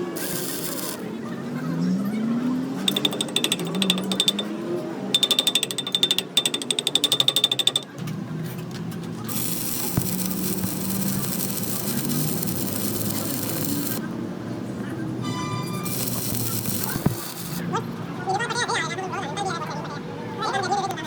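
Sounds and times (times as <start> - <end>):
ratchet wrench clicking: 0.0 - 1.0, 2.9 - 4.5, 5.2 - 8.0, 9.3 - 14.0, 15.8 - 17.6.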